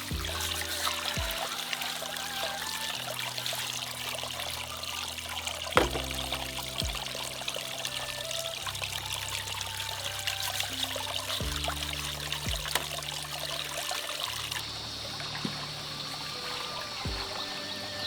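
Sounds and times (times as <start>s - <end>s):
running water trickling: 0.0s - 18.0s
soft background music: 0.0s - 18.0s
sharp knock: 5.8s - 7.1s.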